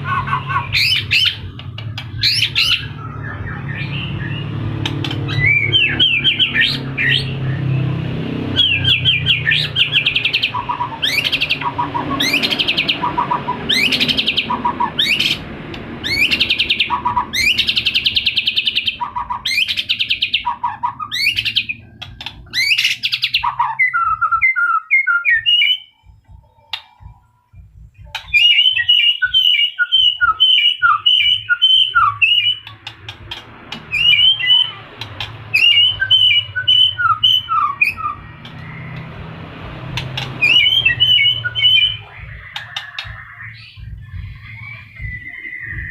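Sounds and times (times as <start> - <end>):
bird chattering notes: 0.0 - 7.7, 8.5 - 27.2, 28.0 - 45.9
bird whistling phrases: 22.5 - 25.9, 28.1 - 32.9, 33.9 - 34.8, 35.5 - 38.9, 40.4 - 45.9.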